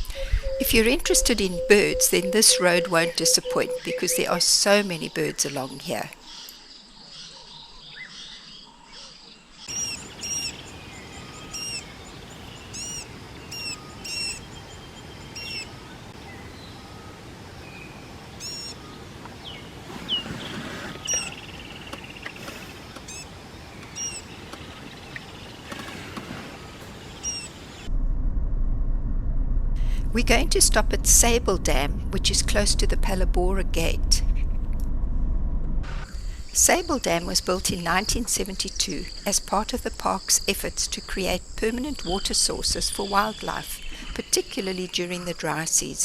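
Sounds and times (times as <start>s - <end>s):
steady low rumble: 0.0s - 4.4s, 27.8s - 37.6s
birds chirping: 0.0s - 27.9s, 36.1s - 46.0s.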